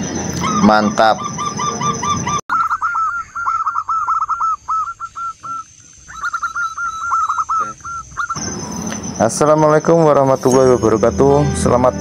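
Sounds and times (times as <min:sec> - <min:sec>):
bird calling in fast runs: 0:00.4 - 0:08.5.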